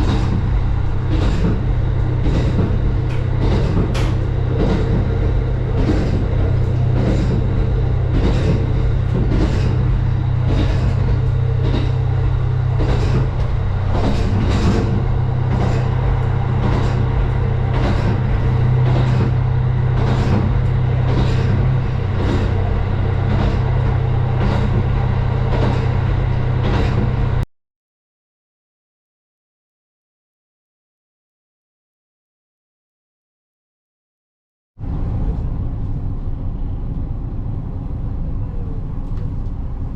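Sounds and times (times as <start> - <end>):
vehicle engine drone from inside: 0.0 - 27.5.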